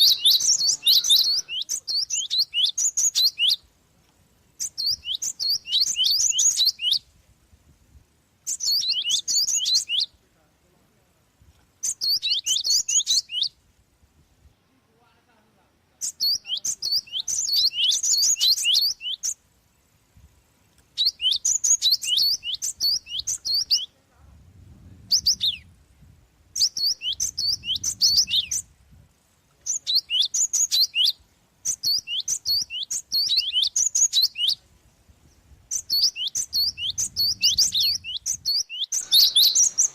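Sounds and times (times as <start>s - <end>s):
sparrow chirping rapidly: 0.0s - 3.7s, 4.5s - 7.0s, 8.4s - 10.1s, 11.8s - 13.6s, 16.0s - 19.9s, 20.9s - 23.9s, 24.9s - 25.7s, 26.5s - 28.8s, 29.6s - 34.6s, 35.2s - 39.9s.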